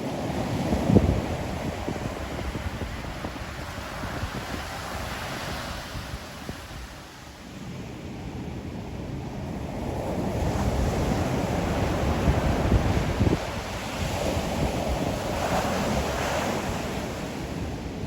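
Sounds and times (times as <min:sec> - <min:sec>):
ocean surf washing ashore: 0:00.0 - 0:18.0.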